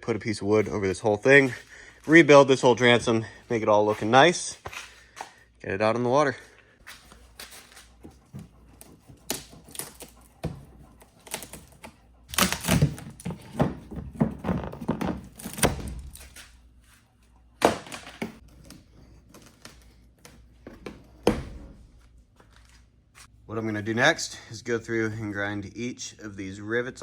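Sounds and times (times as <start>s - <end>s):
knocks and clunks of handling: 12.6s - 16.2s.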